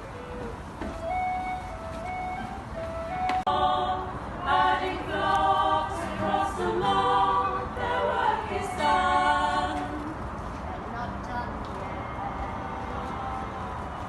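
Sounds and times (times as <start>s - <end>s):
group singing in harmony: 3.1s - 10.4s.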